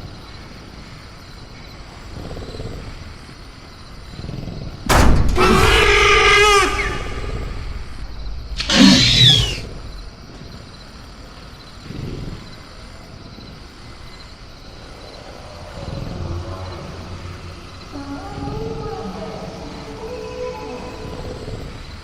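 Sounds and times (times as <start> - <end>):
faint crickets: 0.0 - 22.0
night jungle ambience: 0.0 - 22.0
harsh raptor noise: 3.9 - 22.0
low rumbles: 4.8 - 11.3, 13.8 - 22.0.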